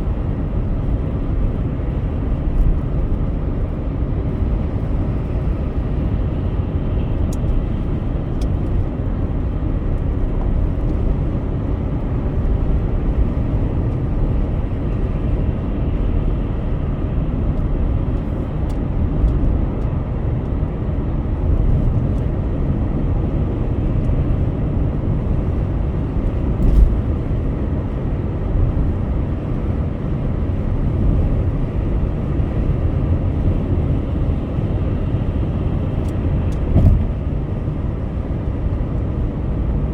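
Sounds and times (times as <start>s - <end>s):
car road and engine rumble: 0.0s - 39.9s
brief thump: 36.7s - 37.2s.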